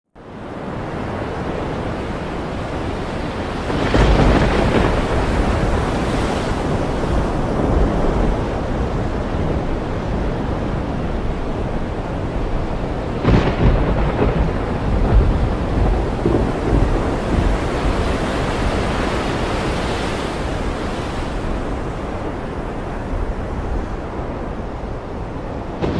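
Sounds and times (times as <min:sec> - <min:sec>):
surf washing onto shore: 0:00.2 - 0:25.9
wind buffeting microphone: 0:00.2 - 0:25.9.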